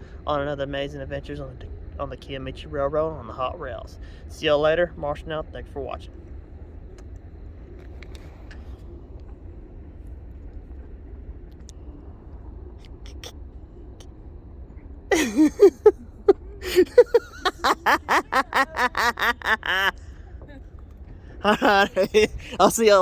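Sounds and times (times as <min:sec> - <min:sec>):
faint low rumble: 0:00.0 - 0:23.0
person laughing loudly: 0:15.1 - 0:20.1, 0:21.4 - 0:22.8.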